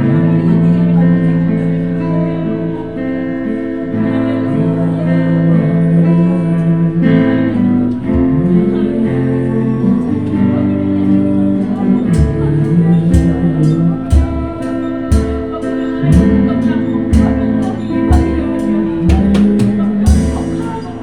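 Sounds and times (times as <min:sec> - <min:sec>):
acoustic guitar strumming: 0:00.0 - 0:21.0
person singing long notes: 0:04.5 - 0:21.0.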